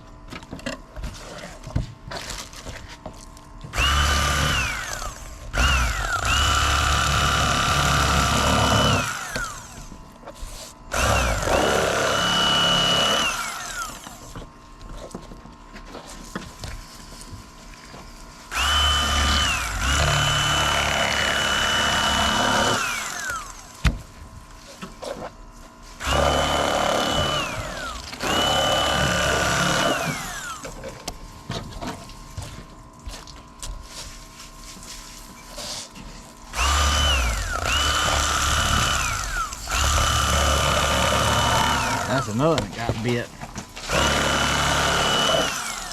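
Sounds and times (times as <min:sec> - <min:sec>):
electric knife motor whine: 0:03.7 - 0:14.4, 0:18.5 - 0:23.9, 0:26.0 - 0:31.1, 0:36.5 - 0:42.6, 0:43.8 - 0:45.9.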